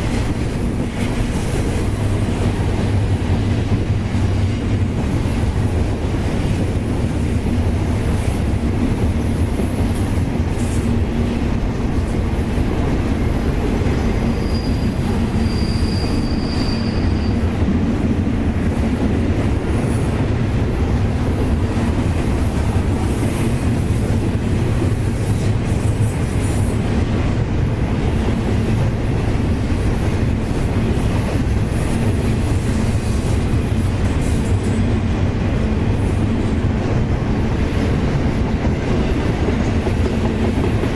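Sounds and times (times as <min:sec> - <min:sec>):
freight train rumbling: 0:00.0 - 0:40.9
wheel squeals: 0:13.3 - 0:17.6.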